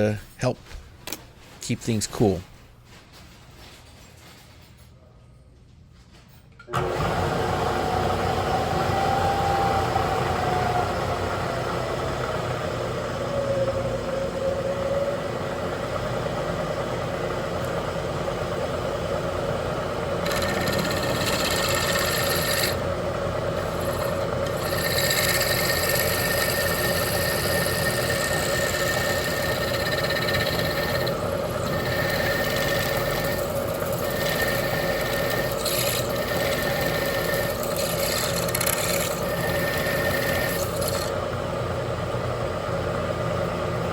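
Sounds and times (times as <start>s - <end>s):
drill motor running: 19.4s - 41.4s
hissing cutting noise with squeal: 23.7s - 41.1s.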